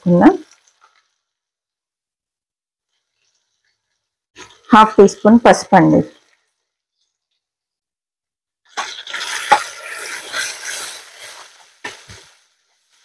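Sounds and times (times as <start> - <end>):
paste and vegetables sizzling in oil: 8.7 - 13.0.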